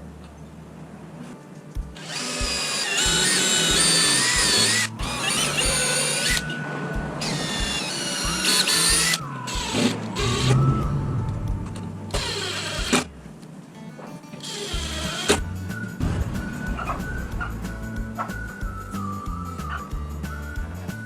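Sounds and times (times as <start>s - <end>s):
background music: 1.4s - 21.0s
electric drill whining: 2.0s - 6.6s, 7.2s - 10.7s, 12.1s - 13.2s, 14.4s - 15.5s.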